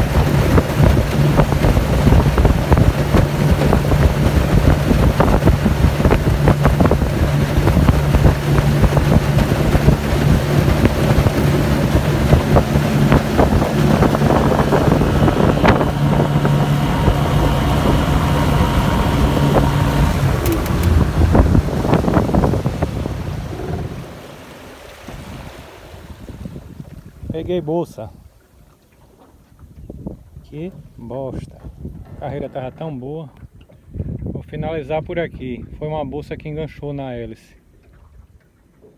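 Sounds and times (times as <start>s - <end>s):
outboard motor running: 0.0s - 27.0s
wind on microphone: 0.0s - 27.6s, 29.4s - 36.7s
water and hull noise: 0.0s - 38.9s.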